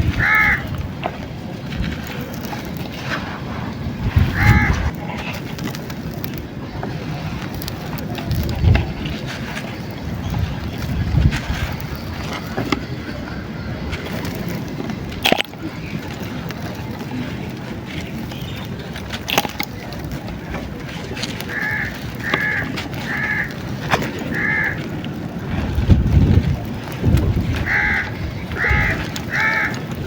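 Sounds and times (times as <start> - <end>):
wind rumble on microphone: 0.0 - 18.9, 19.8 - 30.0
crow cawing: 0.1 - 0.7, 4.3 - 4.8, 21.5 - 23.6, 24.3 - 24.9, 27.6 - 29.8.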